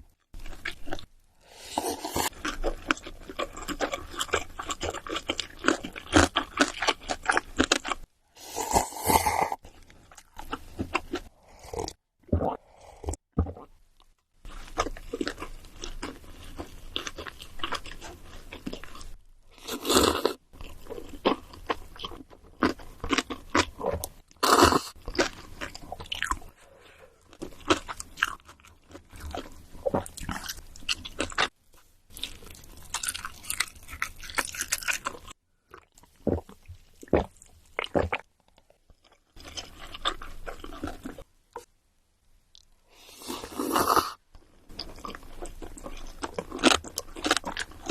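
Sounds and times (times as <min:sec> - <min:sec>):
crunchy food chewing: 0:00.4 - 0:12.5, 0:14.5 - 0:26.6, 0:27.2 - 0:31.5, 0:32.1 - 0:41.3, 0:42.5 - 0:47.9.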